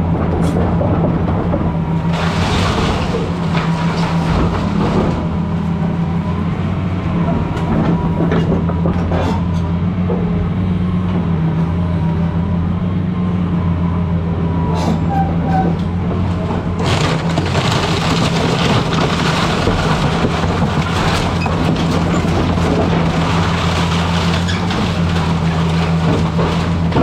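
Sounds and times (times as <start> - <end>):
excavator diesel engine: 0.0 - 27.0
wood crunching and cracking: 0.3 - 6.5, 16.2 - 27.0.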